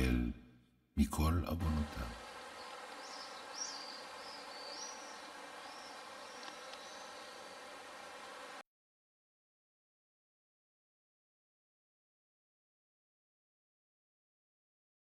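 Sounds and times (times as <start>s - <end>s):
low background noise: 1.0s - 8.6s
small bird chirping: 2.1s - 8.0s.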